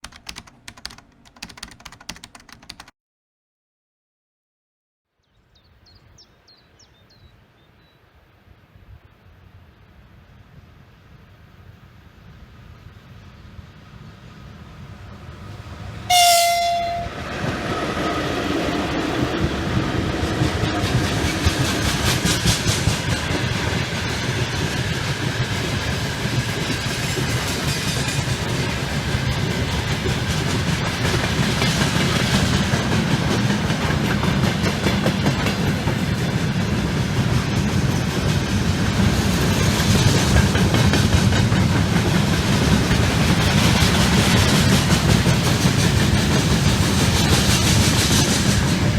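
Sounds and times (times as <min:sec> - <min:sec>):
train wheels rumbling on rail: 0:12.2 - 0:48.9
locomotive horn blast: 0:16.1 - 0:17.2
clickety-clack over rail joints: 0:17.4 - 0:48.9.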